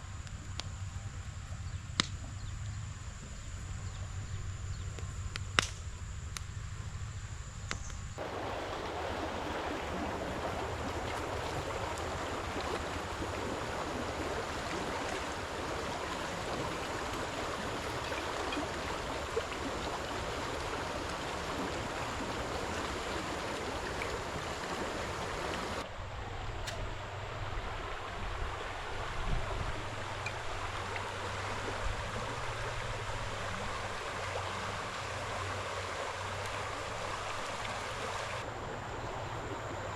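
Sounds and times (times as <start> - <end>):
running water rushing: 8.2 - 39.9.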